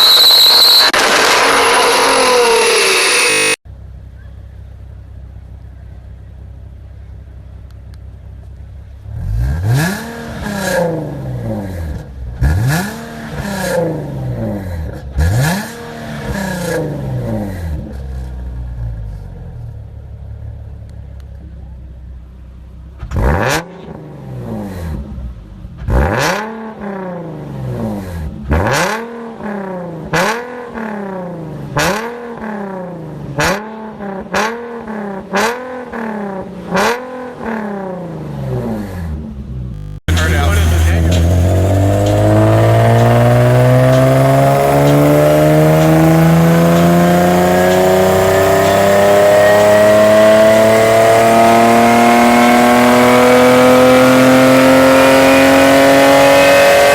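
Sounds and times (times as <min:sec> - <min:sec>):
engine revving: 0:00.0 - 0:03.6, 0:09.1 - 0:18.4, 0:23.0 - 0:56.9
car engine idling: 0:03.7 - 0:09.1, 0:39.3 - 0:50.7.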